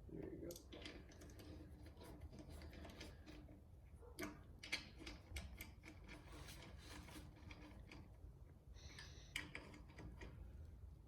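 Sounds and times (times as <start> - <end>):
metallic clicks of lug nuts: 4.2 - 6.3, 8.9 - 10.5.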